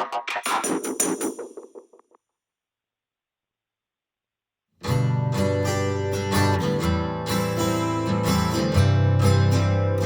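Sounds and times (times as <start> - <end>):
electronic music: 0.0 - 2.2.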